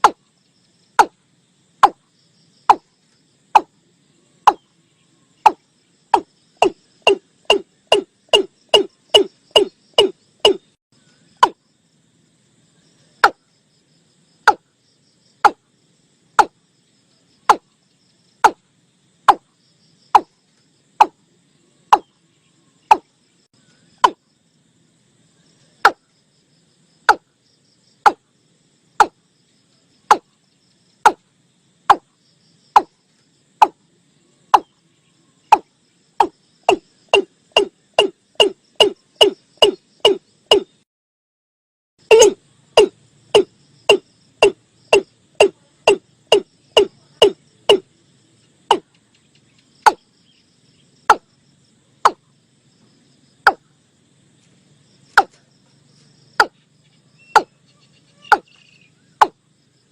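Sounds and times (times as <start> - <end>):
bird knocking calls: 0.0 - 0.2, 2.7 - 2.9, 4.5 - 4.7, 5.4 - 10.7, 11.4 - 11.6, 15.4 - 15.6, 17.5 - 17.7, 18.4 - 18.6, 22.9 - 23.1, 24.0 - 24.2, 27.1 - 27.3, 28.0 - 28.2, 29.0 - 29.2, 30.1 - 30.3, 35.5 - 40.8, 42.1 - 47.8, 49.8 - 50.0, 52.0 - 52.2, 57.3 - 57.5, 58.2 - 58.6, 59.2 - 59.4.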